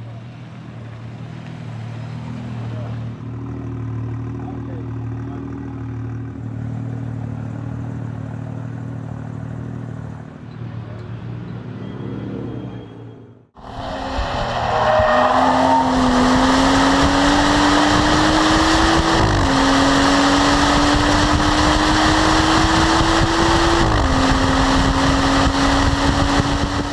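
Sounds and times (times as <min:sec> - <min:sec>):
car engine accelerating: 0:13.5 - 0:26.9.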